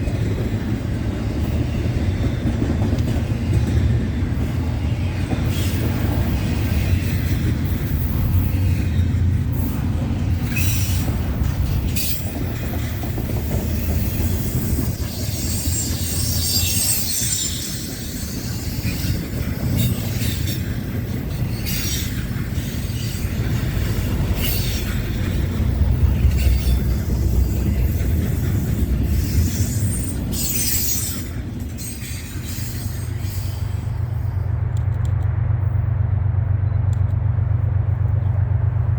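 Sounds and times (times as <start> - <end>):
train wheels rumbling on rail: 0.0 - 38.9
high wheel squeal: 13.8 - 25.1, 25.7 - 34.1.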